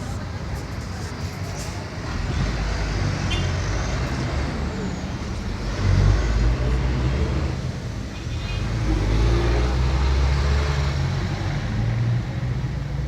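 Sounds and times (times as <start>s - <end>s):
vehicle engine rumbling: 0.0s - 8.1s.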